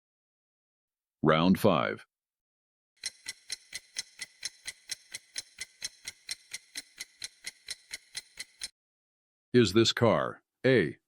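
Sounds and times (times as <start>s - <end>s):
clock ticking: 3.0s - 8.7s.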